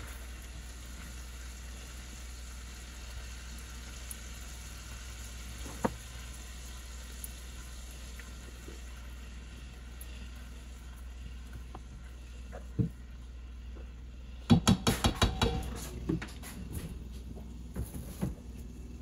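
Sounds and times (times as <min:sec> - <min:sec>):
butter and garlic sizzling: 0:00.0 - 0:14.2.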